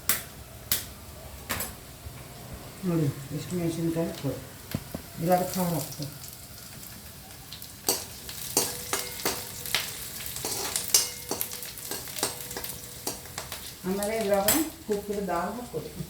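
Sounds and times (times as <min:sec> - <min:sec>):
chillies sizzling in oil: 0:01.8 - 0:16.0
spatula scraping a pan: 0:07.9 - 0:13.5.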